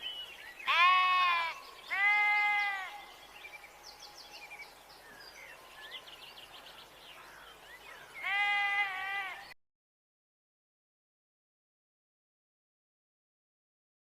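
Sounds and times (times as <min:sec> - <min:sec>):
sheep bleating: 0:00.7 - 0:03.0, 0:08.2 - 0:09.5.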